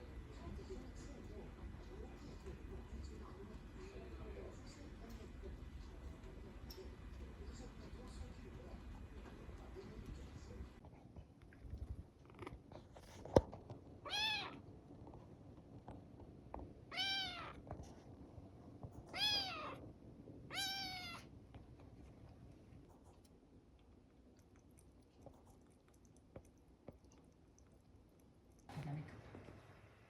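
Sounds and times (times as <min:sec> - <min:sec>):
kitten meowing: 0:14.1 - 0:14.6, 0:16.9 - 0:17.6, 0:19.1 - 0:19.8, 0:20.5 - 0:21.2.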